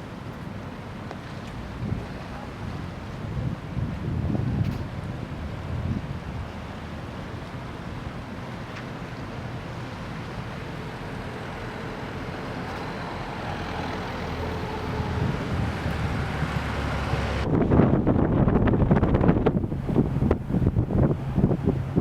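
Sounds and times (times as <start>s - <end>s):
wind noise on microphone: 1.6s - 7.0s, 14.2s - 22.0s
low engine drone: 5.0s - 22.0s.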